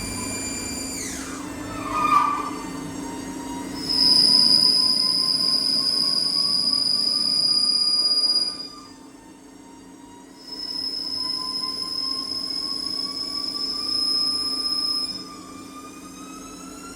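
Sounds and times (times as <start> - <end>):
low whine rising in pitch: 0.0 - 9.0
machine hum: 0.0 - 9.0
lathe cutting squeal: 0.0 - 9.1, 10.0 - 16.9.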